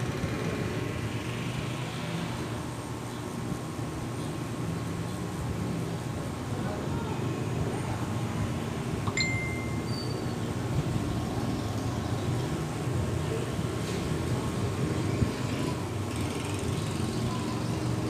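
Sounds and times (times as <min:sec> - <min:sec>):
high metallic ping: 0:09.1 - 0:10.2.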